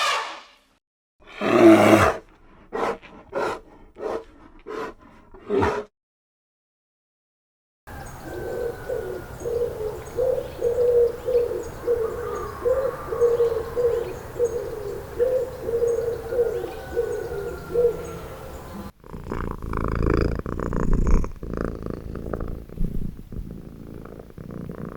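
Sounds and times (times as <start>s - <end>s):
bird low calls: 7.9s - 18.9s
faint high bird chirps: 7.9s - 18.9s
low noisy animal sound: 7.9s - 24.9s.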